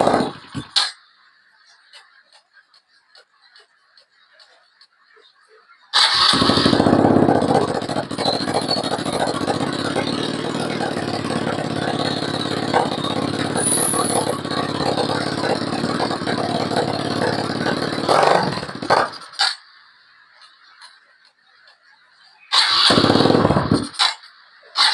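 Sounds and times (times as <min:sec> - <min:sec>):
dirt bike engine running: 0:00.0 - 0:00.8, 0:06.0 - 0:20.7, 0:22.6 - 0:24.2.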